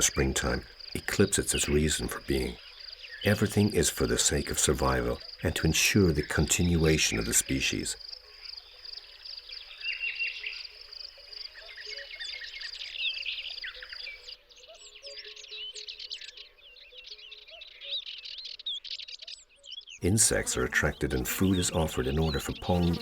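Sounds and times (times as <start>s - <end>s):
high insect trill: 0.0s - 14.2s, 20.0s - 23.0s
songbirds chirping: 0.0s - 23.0s.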